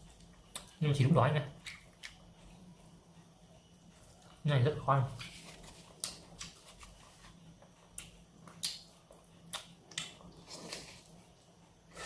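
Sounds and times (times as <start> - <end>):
person chewing food: 7.8 - 11.2.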